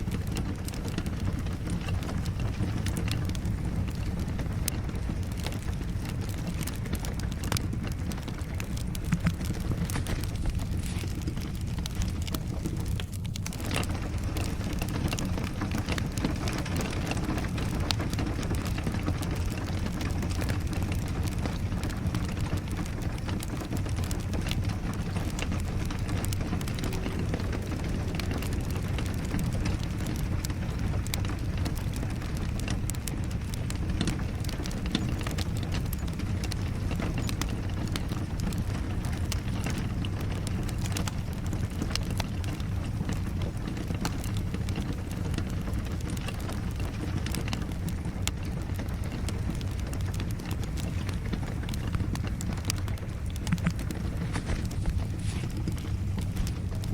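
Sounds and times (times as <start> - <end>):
low rumble: 0.0 - 34.6
steady rain: 0.0 - 56.9
wood fire crackling and popping: 0.0 - 56.9.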